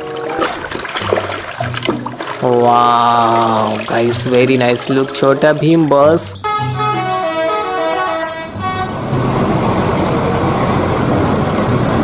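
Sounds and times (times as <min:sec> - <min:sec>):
vehicle horn tones: 0:06.4 - 0:09.4.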